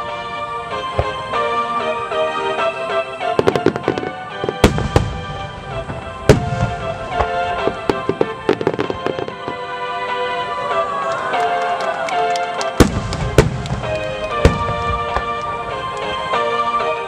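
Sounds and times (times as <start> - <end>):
crackling firework bangs: 0.0 - 9.8, 12.6 - 16.4
music: 0.0 - 17.0
firework booms: 0.8 - 1.6, 3.2 - 9.7, 12.8 - 16.4.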